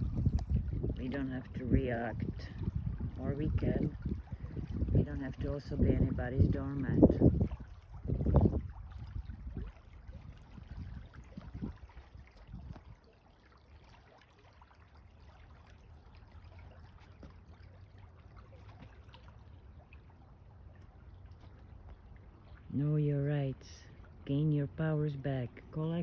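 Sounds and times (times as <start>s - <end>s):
wind bumps on microphone: 0.0s - 13.0s
faint trickling water: 0.0s - 26.0s.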